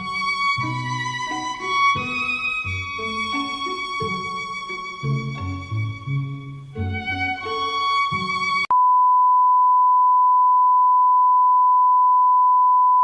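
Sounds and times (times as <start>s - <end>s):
string background music with violin: 0.0s - 8.7s.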